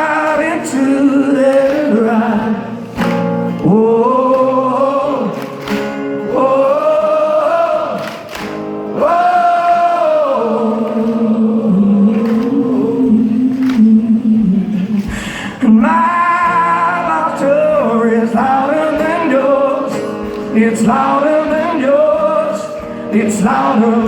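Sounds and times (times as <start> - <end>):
person singing: 0.0 - 2.8, 3.6 - 5.6, 8.9 - 24.0
rock band playing live: 0.0 - 9.0, 14.8 - 24.0.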